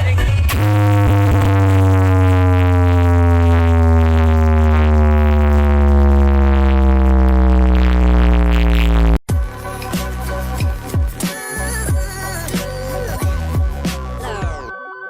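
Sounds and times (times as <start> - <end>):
heavy bass drone: 0.0 - 14.5
falling electronic tone: 0.5 - 9.2.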